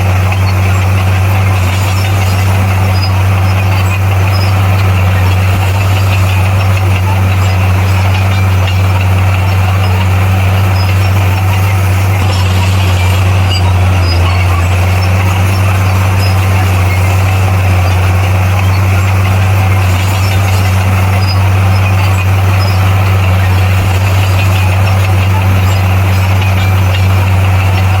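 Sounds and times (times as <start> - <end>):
bulldozer diesel engine humming: 0.0 - 28.0.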